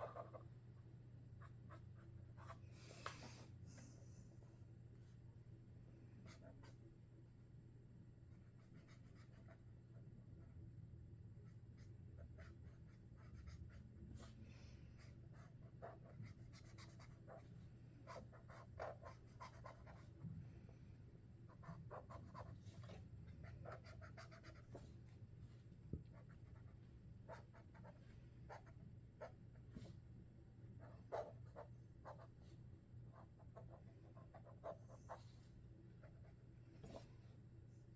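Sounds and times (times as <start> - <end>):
marker drawing on paper: 30.8 - 32.4.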